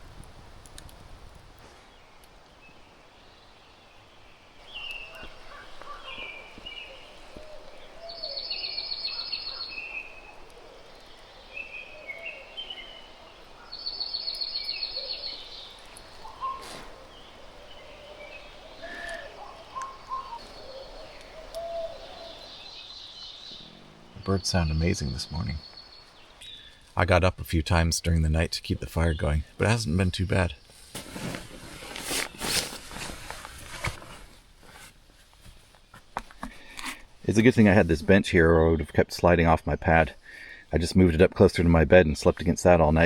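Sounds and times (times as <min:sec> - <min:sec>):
songbirds chirping: 0:00.0 - 0:43.0.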